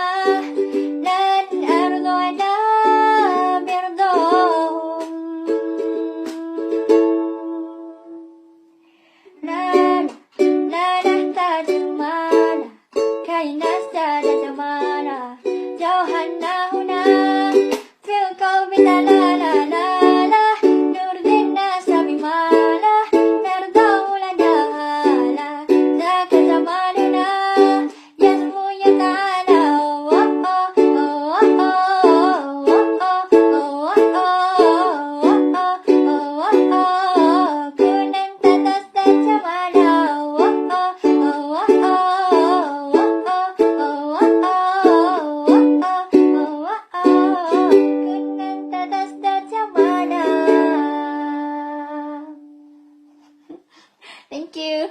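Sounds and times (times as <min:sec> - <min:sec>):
plucked ukulele: 0:00.0 - 0:08.4, 0:09.4 - 0:53.6.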